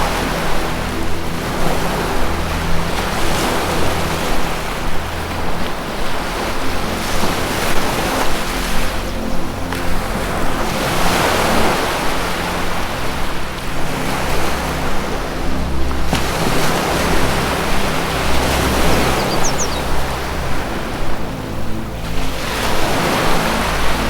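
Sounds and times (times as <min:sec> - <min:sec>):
music drone of held notes: 0:00.0 - 0:24.0
ocean waves washing in: 0:00.0 - 0:24.0
high bird chirps: 0:19.1 - 0:20.0.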